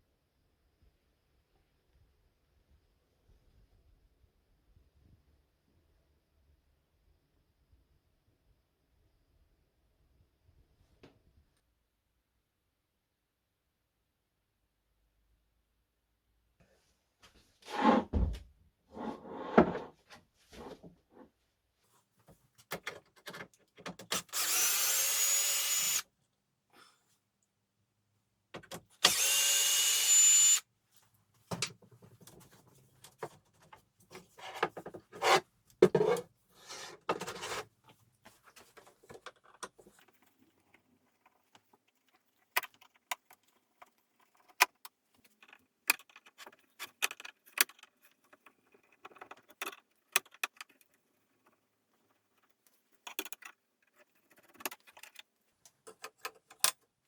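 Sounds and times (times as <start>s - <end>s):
power drill whine: 24.1s - 26.0s, 29.0s - 30.6s
tools and wood knocking: 33.1s - 37.6s.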